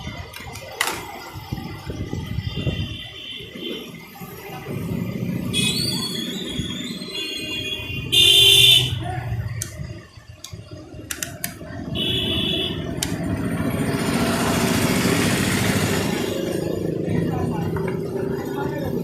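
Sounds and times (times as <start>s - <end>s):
vehicle horn beeps: 5.5s - 9.0s, 11.9s - 12.9s
passing vehicle rush: 12.7s - 19.0s.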